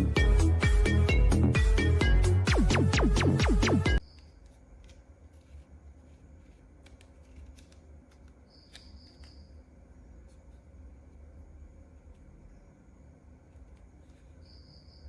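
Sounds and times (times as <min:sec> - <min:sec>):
electronic music with beat: 0:00.0 - 0:04.0
toy packaging rustling and clicking: 0:04.0 - 0:09.4.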